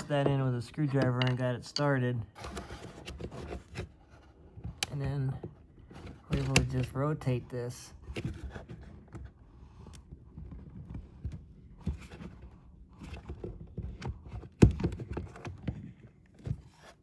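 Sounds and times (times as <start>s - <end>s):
plastic pump clicks and knocks: 0.0s - 1.9s.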